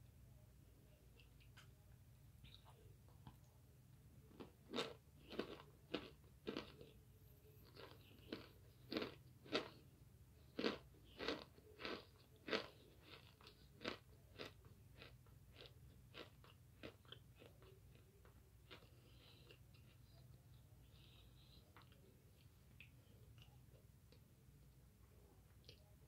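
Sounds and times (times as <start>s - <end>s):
crisp crunching chewing: 4.3s - 7.0s, 7.6s - 9.9s, 10.5s - 24.2s.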